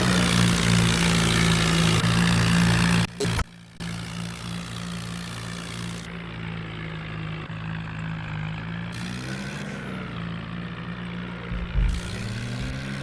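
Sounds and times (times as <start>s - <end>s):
tractor diesel engine running: 0.0s - 13.0s
low thump: 11.5s - 12.7s.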